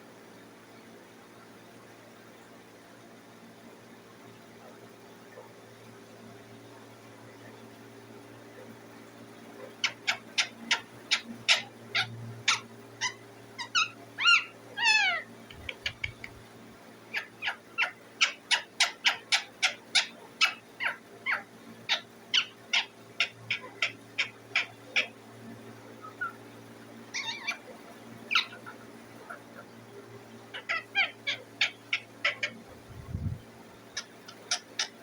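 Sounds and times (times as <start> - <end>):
parakeet chirping: 9.8 - 16.4, 17.1 - 25.2, 27.1 - 29.7, 30.5 - 35.0
parakeet squawks: 9.8 - 16.4, 17.1 - 25.2, 27.1 - 29.7, 30.5 - 32.9, 34.0 - 35.0.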